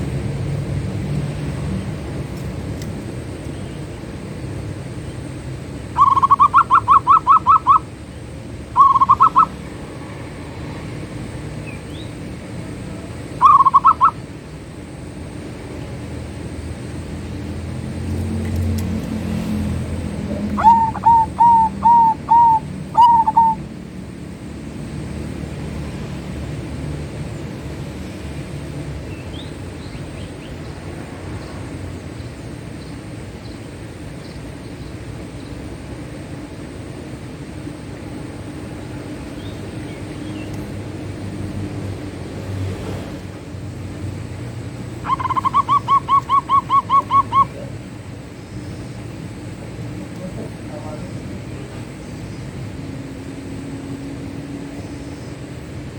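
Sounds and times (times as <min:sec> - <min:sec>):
dove cooing: 0:05.9 - 0:07.9, 0:08.8 - 0:09.7, 0:13.4 - 0:14.2, 0:20.1 - 0:23.8, 0:44.9 - 0:47.8.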